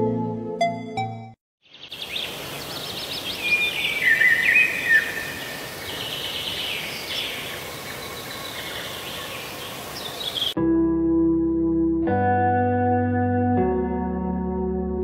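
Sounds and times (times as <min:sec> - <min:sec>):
songbirds singing: 0:01.6 - 0:10.6
steady outdoor hiss: 0:01.6 - 0:10.6.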